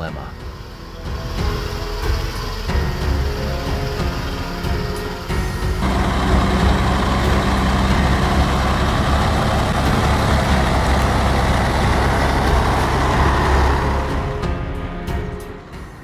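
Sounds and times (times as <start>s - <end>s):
heavy truck engine running: 5.1s - 14.5s.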